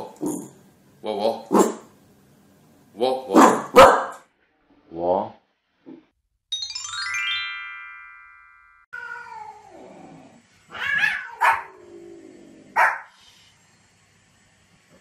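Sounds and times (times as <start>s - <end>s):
dog barking sharply: 3.4s - 4.2s, 11.4s - 11.7s, 12.8s - 13.1s
short musical chime: 6.5s - 8.9s.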